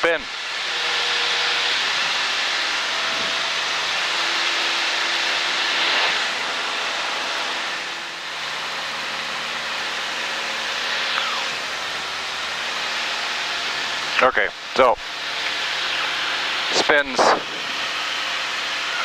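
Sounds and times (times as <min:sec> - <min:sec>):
airplane engine drone: 0:00.0 - 0:19.0
rush of air: 0:16.7 - 0:18.3.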